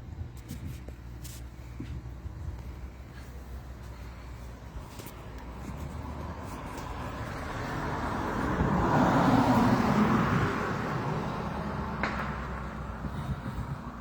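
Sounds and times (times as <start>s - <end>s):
car passing by: 5.7s - 14.0s.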